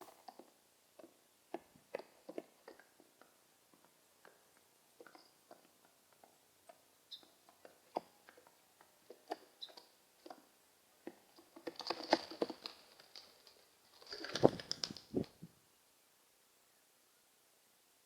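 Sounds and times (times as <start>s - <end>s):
pigeons tapping and clicking: 0.0s - 15.4s
pigeons rapid tapping and rustling: 11.1s - 15.4s.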